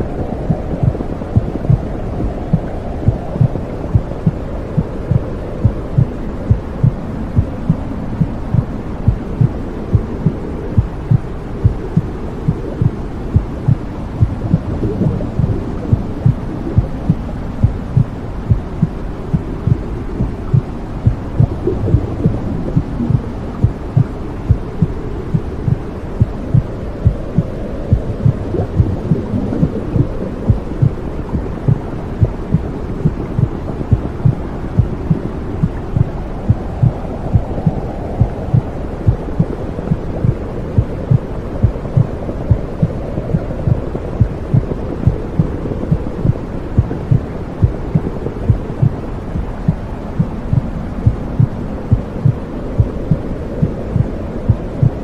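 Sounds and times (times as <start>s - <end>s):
heartbeat pulsing: 0.0s - 55.0s
low whooshing rumble: 0.0s - 55.0s.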